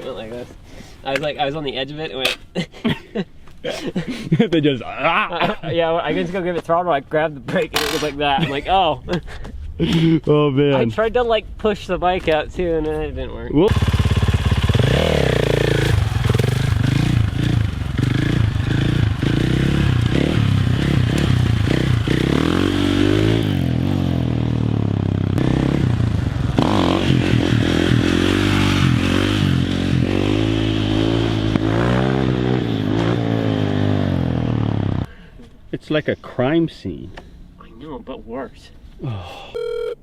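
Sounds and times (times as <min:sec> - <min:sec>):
clattering and scraping: 0:07.5 - 0:08.2
dirt bike engine revving: 0:13.7 - 0:35.1.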